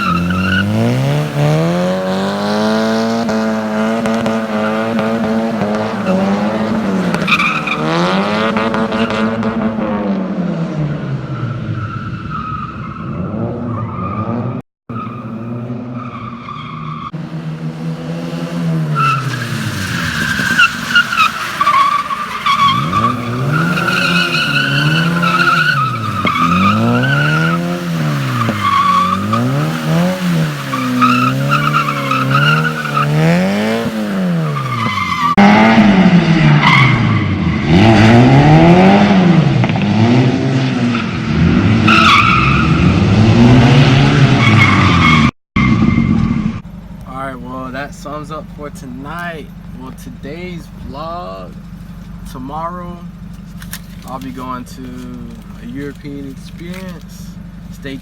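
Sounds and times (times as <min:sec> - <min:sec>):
tyres squealing on wet pavement: 0:00.0 - 0:09.8, 0:11.2 - 0:39.8, 0:40.7 - 0:46.4, 0:51.5 - 0:58.0
car engine revving: 0:00.0 - 0:58.0.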